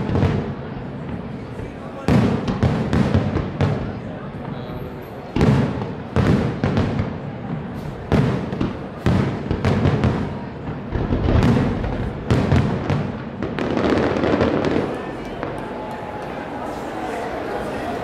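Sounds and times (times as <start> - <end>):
fireworks bursting with echoing bangs: 0.0 - 17.1.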